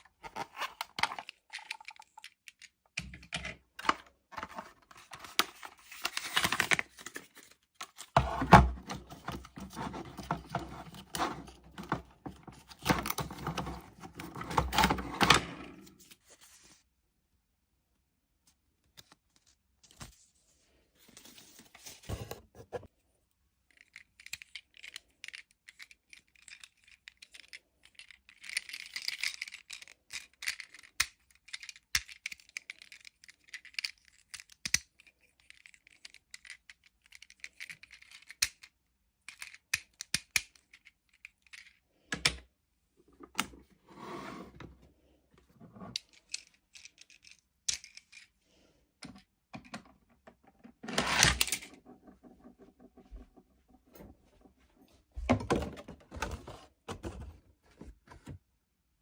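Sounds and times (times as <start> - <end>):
plastic and cardboard rustling: 3.9 - 16.8, 21.0 - 22.9, 50.7 - 58.4
plastic pieces clicking: 23.7 - 38.7, 39.3 - 42.4.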